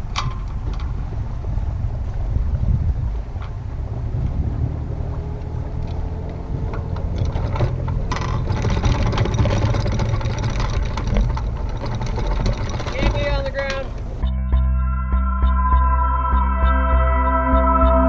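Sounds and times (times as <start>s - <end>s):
wind rushing over microphone: 0.0s - 14.2s
water rumble: 0.0s - 18.0s
small clicks and knocks: 5.4s - 14.2s.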